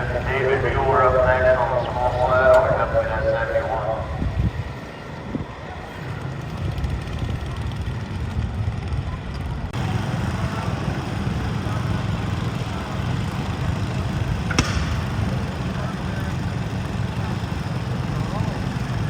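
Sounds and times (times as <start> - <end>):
garden tractor engine running: 4.6 - 19.0.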